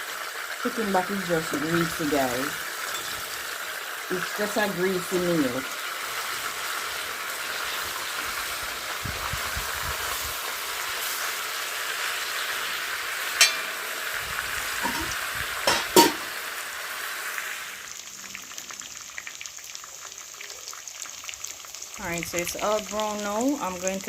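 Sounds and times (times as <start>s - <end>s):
meat sizzling in hot oil: 0.0s - 24.0s
knocks against pot: 13.4s - 13.8s, 14.8s - 15.1s, 15.7s - 16.3s.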